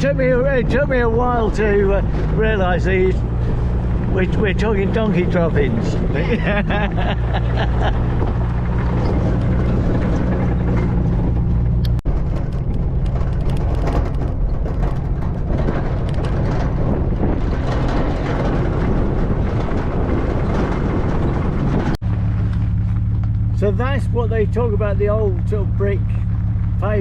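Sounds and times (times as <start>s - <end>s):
car engine drone: 0.0s - 27.0s
road and tyre noise: 0.0s - 27.0s.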